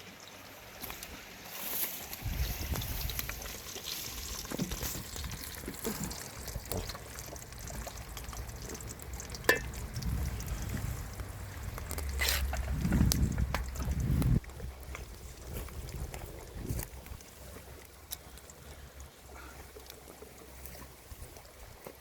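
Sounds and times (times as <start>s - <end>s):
water trickling and splashing: 0.0s - 22.0s
low rumble: 9.6s - 16.9s.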